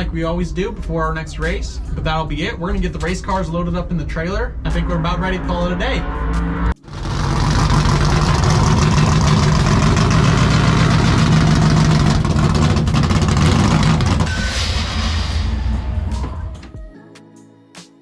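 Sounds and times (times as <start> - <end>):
car engine running hard: 3.9 - 16.8.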